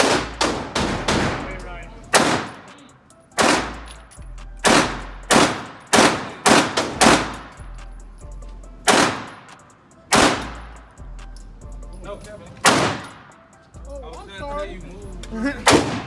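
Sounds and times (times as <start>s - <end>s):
gunshots with echo: 0.0s - 2.8s, 3.4s - 4.0s, 4.6s - 7.6s, 8.9s - 10.8s, 12.6s - 13.4s, 15.6s - 16.0s.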